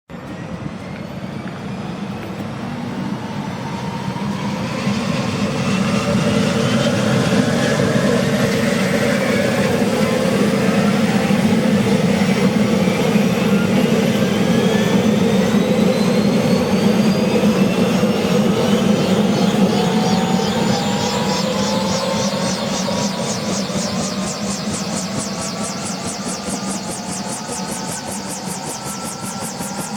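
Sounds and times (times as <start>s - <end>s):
turbine engine whine spooling up: 0.1s - 29.9s.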